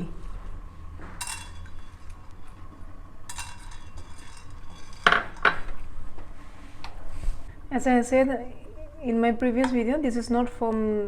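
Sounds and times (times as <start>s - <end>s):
metal spoon scraping a pot: 1.2s - 5.8s.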